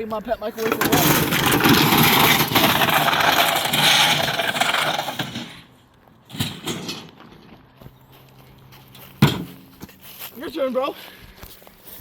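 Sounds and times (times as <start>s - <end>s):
microwave scraping on ground: 0.5s - 7.4s.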